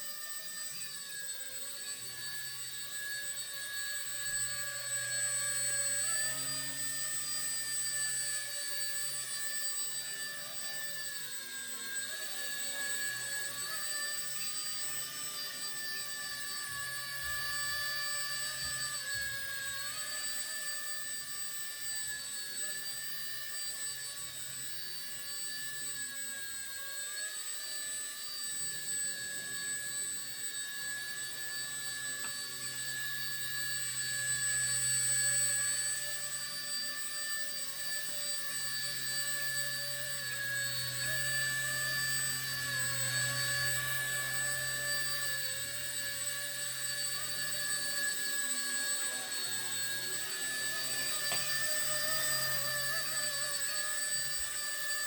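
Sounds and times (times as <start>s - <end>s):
helicopter motor and rotor whining: 0.0s - 55.0s.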